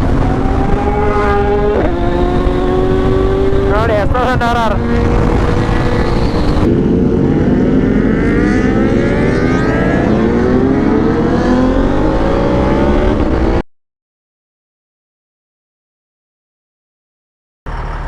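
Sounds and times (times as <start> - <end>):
motorcycle engine accelerating: 0.0 - 13.6
wind rush: 0.0 - 13.6.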